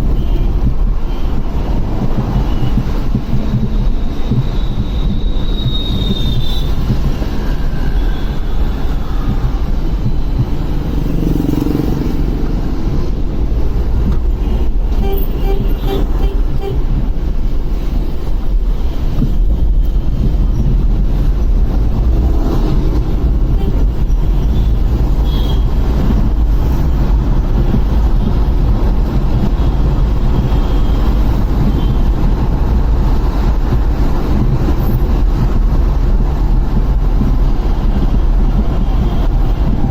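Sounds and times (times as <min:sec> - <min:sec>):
wind rumble on microphone: 0:00.0 - 0:39.9
motorcycle engine: 0:10.5 - 0:12.9
car horn toots: 0:14.4 - 0:16.9, 0:23.5 - 0:25.7.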